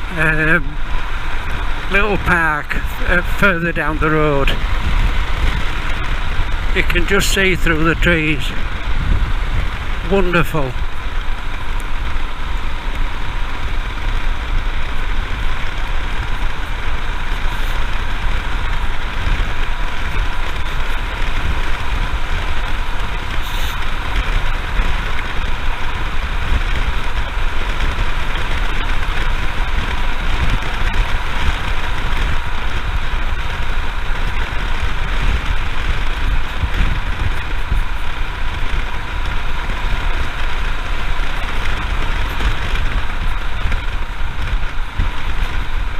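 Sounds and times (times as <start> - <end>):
wind rushing: 0.0 - 24.7
motorcycle engine running: 0.0 - 45.9
wind buffeting on microphone: 0.0 - 45.9.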